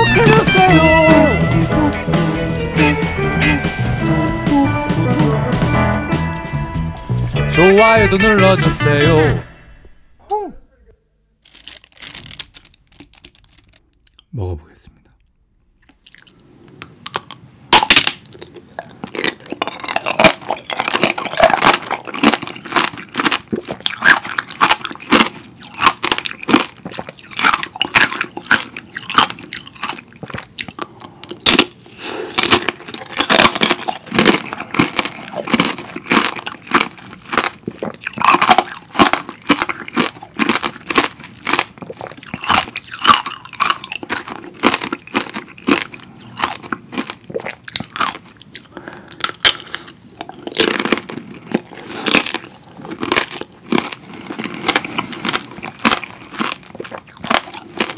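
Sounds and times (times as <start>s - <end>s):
candy shell crunching: 11.4s - 14.3s, 17.0s - 57.9s
chewing: 15.8s - 57.9s.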